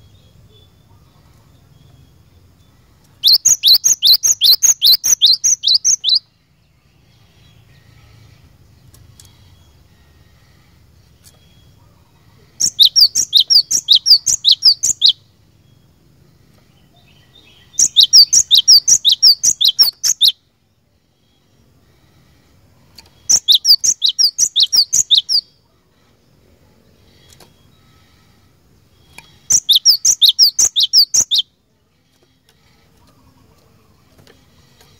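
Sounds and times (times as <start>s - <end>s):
bird singing sharp repeated notes: 1.7s - 6.4s, 12.6s - 16.0s, 17.0s - 20.4s, 23.1s - 25.6s, 28.9s - 31.6s.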